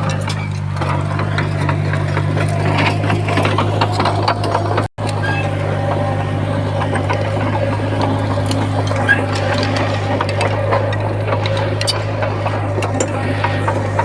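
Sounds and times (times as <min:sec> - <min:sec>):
bulldozer diesel engine running: 0:00.0 - 0:14.0
steel tracks clanking: 0:00.0 - 0:14.0.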